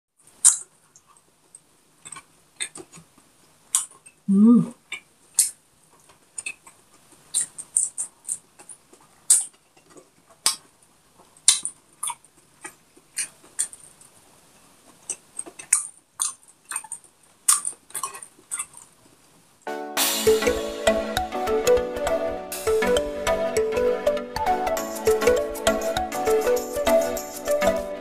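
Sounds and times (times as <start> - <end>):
person chewing: 0.2 - 1.2, 2.0 - 19.3
wet mouth clicks and lip smacks: 4.9 - 5.6, 6.4 - 10.7, 11.4 - 13.8, 15.0 - 18.9.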